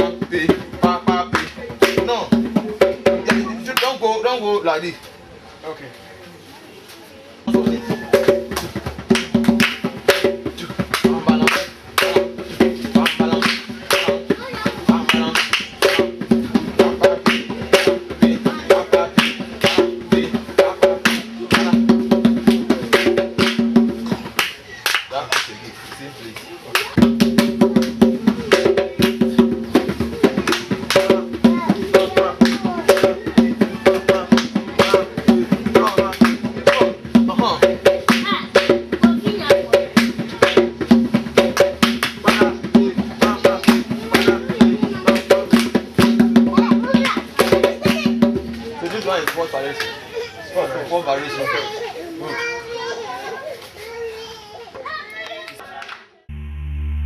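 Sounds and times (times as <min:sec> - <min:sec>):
drums played fast: 0:00.0 - 0:03.8, 0:07.5 - 0:24.4, 0:26.9 - 0:48.8.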